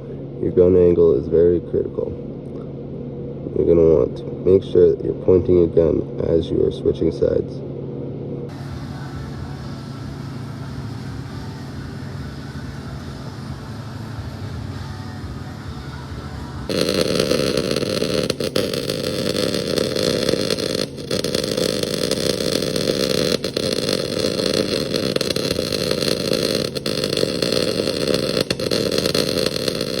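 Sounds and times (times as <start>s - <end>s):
welding arc crackling and buzzing: 8.5s - 30.0s.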